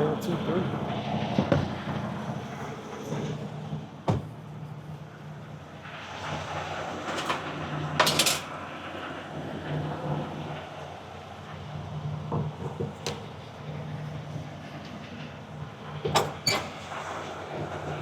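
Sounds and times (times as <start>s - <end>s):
short metallic rattle: 8.0s - 8.5s.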